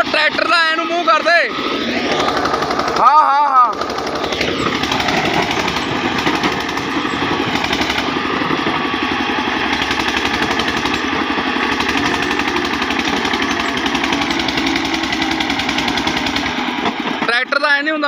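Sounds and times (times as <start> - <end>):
diesel tractor engine knocking: 0.0 - 18.0.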